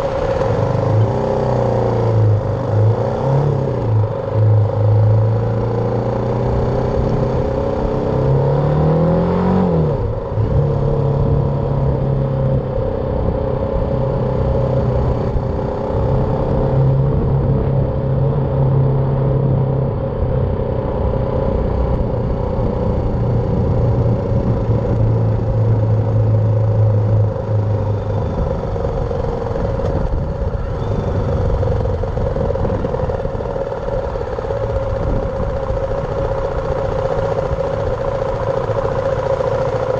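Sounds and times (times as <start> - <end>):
motorcycle engine running: 0.0 - 39.9
wind rumble: 9.6 - 39.9.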